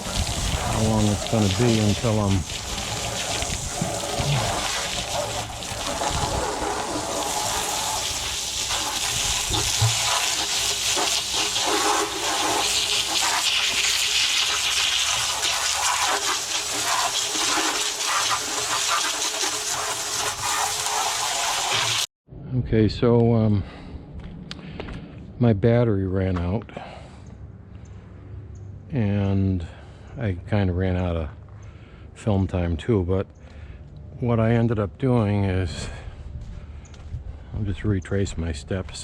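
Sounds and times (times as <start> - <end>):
water rushing and splashing: 0.0 - 22.1.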